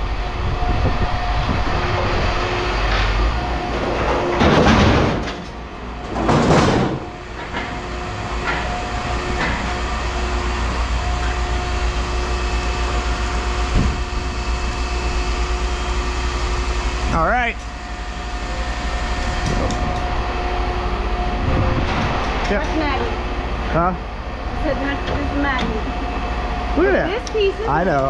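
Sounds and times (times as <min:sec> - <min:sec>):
machinery hum: 0:00.0 - 0:28.0
loud rushing scraping noise: 0:18.3 - 0:24.5.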